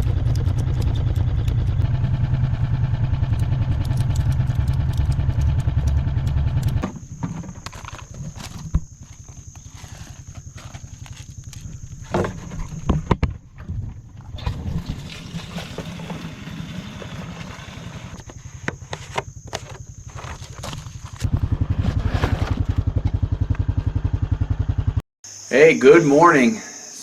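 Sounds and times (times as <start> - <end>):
atv engine running: 0.0 - 25.0
knocks and clunks: 4.7 - 9.6, 11.5 - 23.7.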